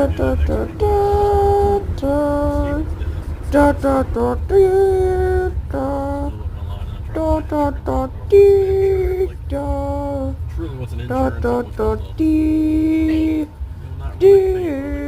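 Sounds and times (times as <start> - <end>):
person singing slow melody: 0.0 - 6.4, 7.2 - 10.5, 11.1 - 15.0
steady low rumble: 0.0 - 15.0.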